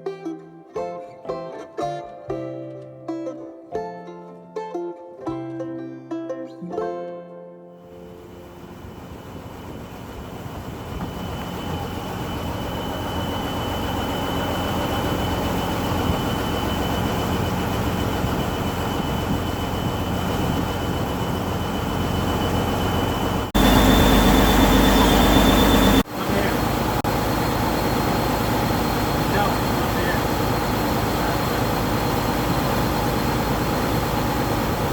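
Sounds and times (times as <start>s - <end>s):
boat engine running: 7.9s - 34.9s
thin high whine: 7.9s - 34.9s.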